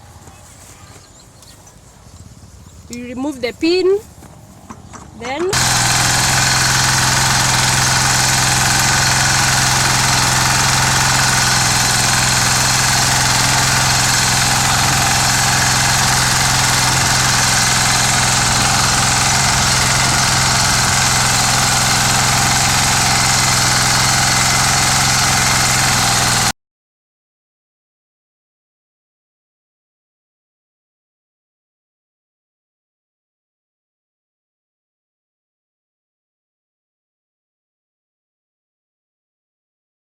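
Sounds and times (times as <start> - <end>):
power tiller engine running: 0.0 - 26.5.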